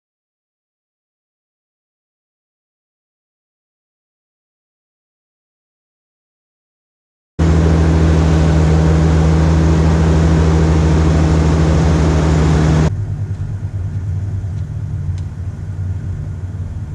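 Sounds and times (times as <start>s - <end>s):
truck engine idling: 7.4s - 16.9s.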